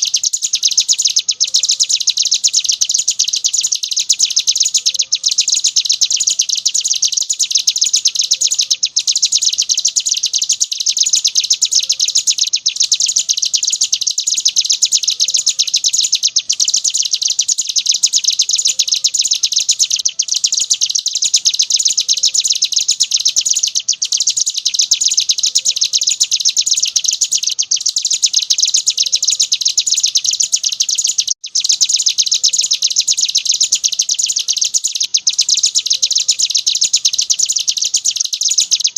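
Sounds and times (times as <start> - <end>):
bird singing rapid high trill: 0.0 - 38.9.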